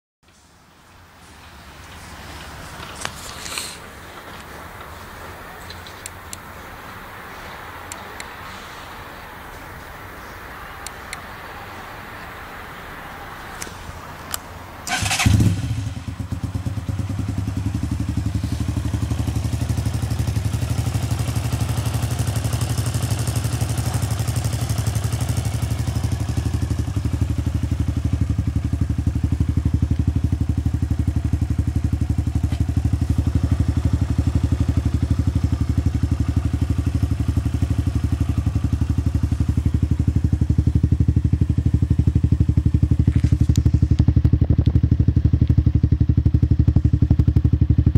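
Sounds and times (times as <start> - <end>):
motorcycle engine starting and idling: 14.3 - 47.9.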